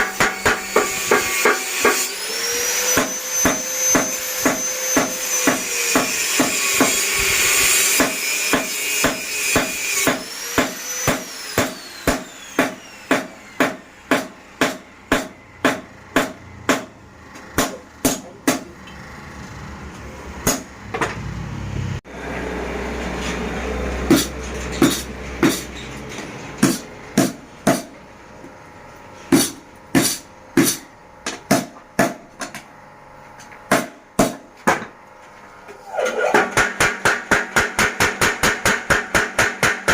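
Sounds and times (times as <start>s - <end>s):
power hammer striking steel: 0.0s - 18.9s, 20.4s - 21.2s, 24.0s - 25.8s, 26.6s - 28.0s, 29.3s - 32.3s, 36.3s - 39.9s
high whine with grinding: 0.0s - 36.8s.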